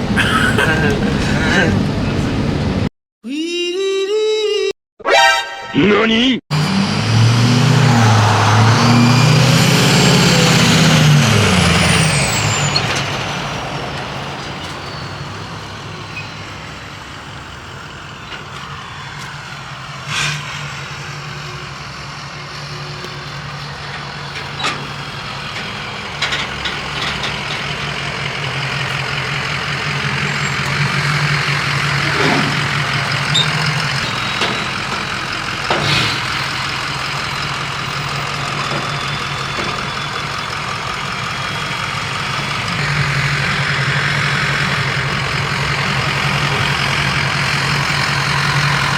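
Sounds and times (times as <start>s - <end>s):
heavy vehicle engine running: 0.0s - 2.9s, 6.5s - 48.9s
road noise: 0.0s - 2.9s, 6.5s - 48.9s
falling whistle: 7.6s - 10.8s.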